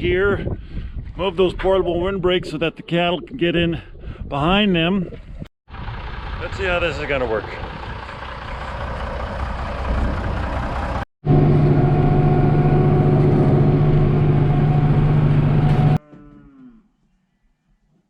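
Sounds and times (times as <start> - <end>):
loud steady engine drone: 5.7 - 16.0
vehicle engine running: 5.7 - 16.0.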